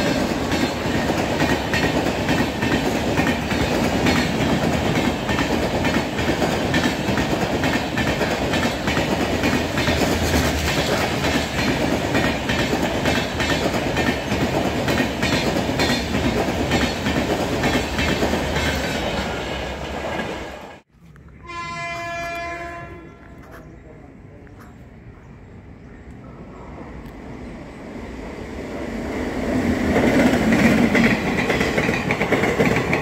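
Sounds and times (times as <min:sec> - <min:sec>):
train coaches passing: 0:00.0 - 0:33.0
train horn blast: 0:21.4 - 0:23.6.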